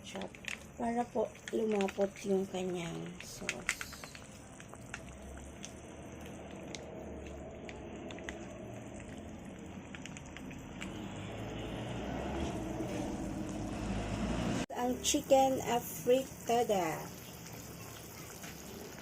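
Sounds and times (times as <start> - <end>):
sauce simmering in a pan: 0.1 - 19.0.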